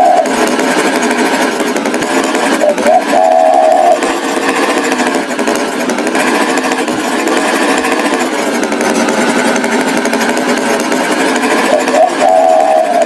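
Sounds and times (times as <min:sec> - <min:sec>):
tractor engine rattling: 0:00.0 - 0:13.0.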